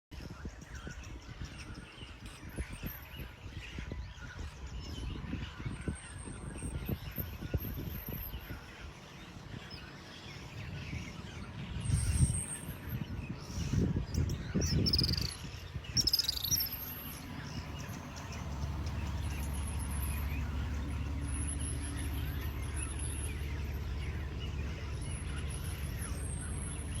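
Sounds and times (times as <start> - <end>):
birds chirping: 0.2 - 27.0
steady low hum: 15.4 - 27.0.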